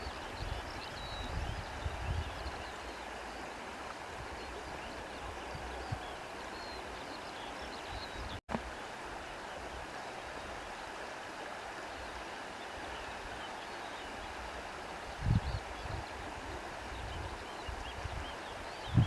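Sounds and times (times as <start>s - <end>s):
stream water flowing: 0.0s - 19.0s.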